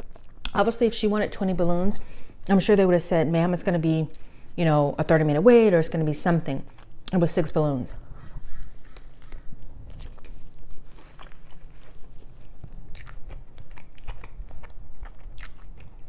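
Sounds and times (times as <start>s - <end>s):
person chewing food: 0.0s - 0.6s, 6.6s - 7.3s, 8.0s - 16.0s.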